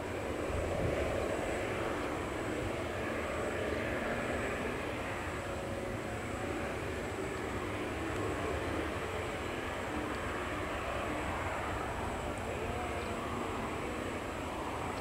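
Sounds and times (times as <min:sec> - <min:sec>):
jet airliner engines: 0:00.0 - 0:15.0.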